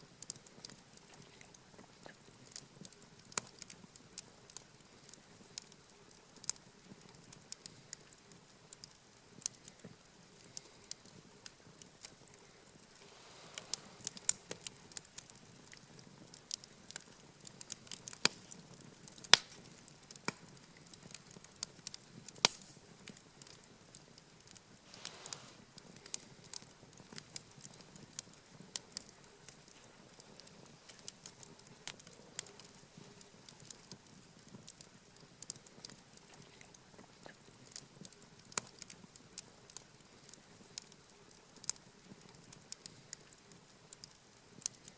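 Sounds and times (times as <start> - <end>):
campfire crackling: 0.0 - 44.9
burning wood snapping and popping: 0.1 - 44.9
soft rushing swell: 13.0 - 14.3.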